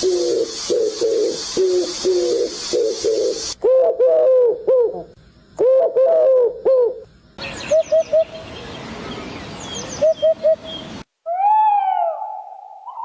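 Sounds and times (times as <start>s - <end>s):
faint hiss: 0.0s - 3.6s.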